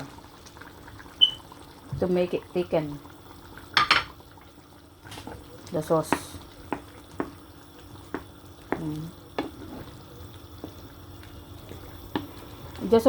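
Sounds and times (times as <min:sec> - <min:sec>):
sauce simmering: 0:00.0 - 0:13.0
spoon scraping cooking pan: 0:09.3 - 0:10.0.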